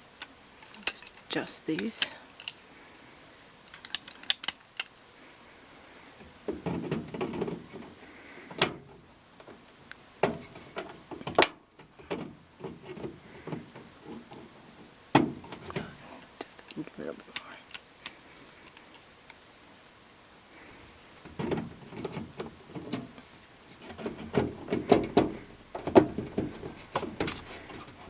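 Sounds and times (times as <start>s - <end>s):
clatter of plastic and metal parts: 0.6s - 2.6s, 3.6s - 4.9s, 6.5s - 8.9s, 21.3s - 28.0s.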